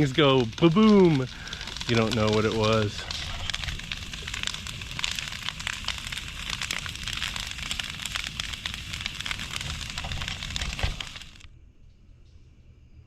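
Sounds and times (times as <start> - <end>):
bonfire crackling and popping: 0.0 - 11.5.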